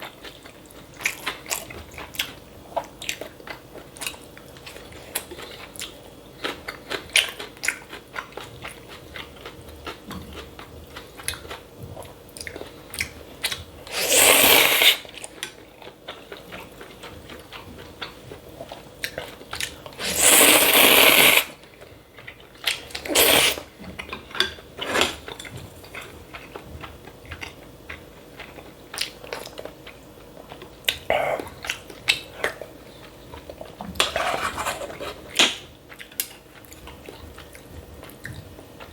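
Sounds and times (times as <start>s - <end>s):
chewing with crisp crunches: 0.0s - 38.9s
loud noodle slurps: 13.9s - 15.1s, 20.0s - 21.6s, 23.0s - 23.7s, 24.8s - 25.2s.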